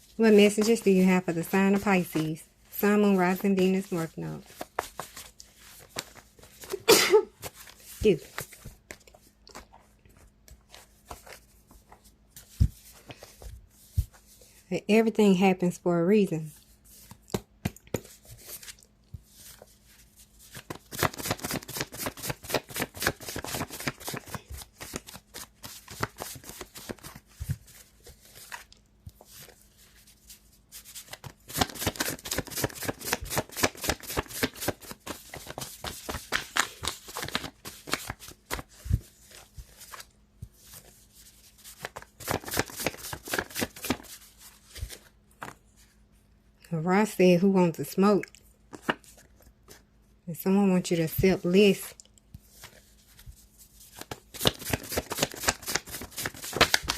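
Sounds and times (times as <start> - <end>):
cards being shuffled: 3.1 - 14.4, 16.6 - 45.8, 52.3 - 56.9.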